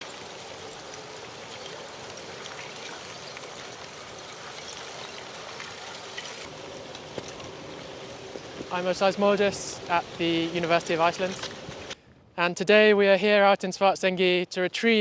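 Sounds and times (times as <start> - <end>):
rushing hiss with crackles: 0.0 - 12.0.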